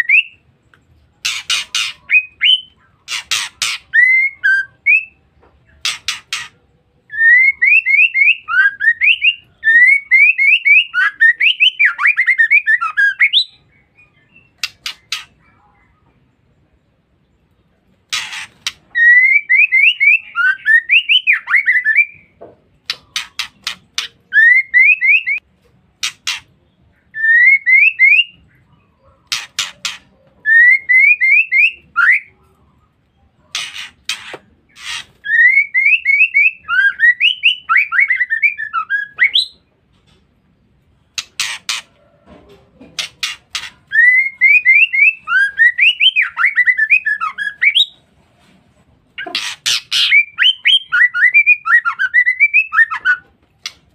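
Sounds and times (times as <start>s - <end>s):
bird whistling: 0.0s - 0.4s, 1.2s - 5.2s, 7.1s - 15.4s, 18.1s - 25.4s, 27.1s - 28.5s, 29.3s - 32.4s, 34.8s - 39.6s, 43.2s - 48.0s, 49.2s - 53.3s.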